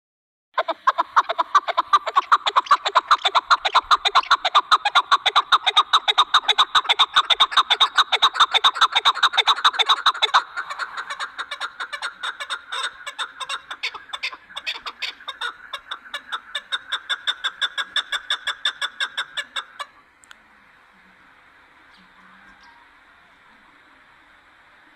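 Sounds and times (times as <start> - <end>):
partridge clucking call: 0.6 - 20.0.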